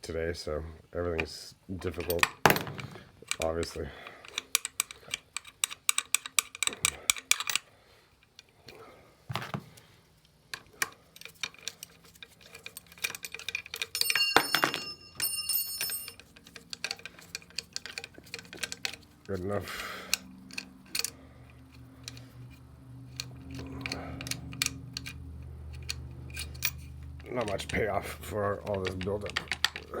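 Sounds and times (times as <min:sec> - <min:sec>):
ratchet wrench clicking: 0:03.3 - 0:07.6, 0:16.0 - 0:27.9
metallic ringing clink: 0:12.6 - 0:16.6.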